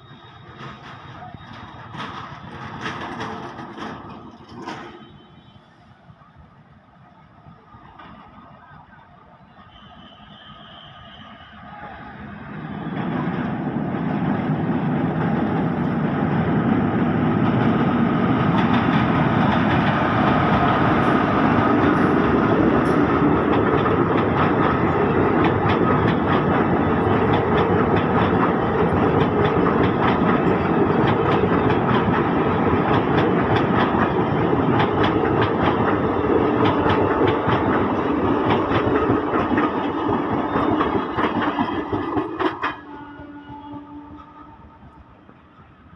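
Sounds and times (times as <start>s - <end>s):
train wheels clicking over rail joints: 0.0s - 5.5s, 17.4s - 44.4s.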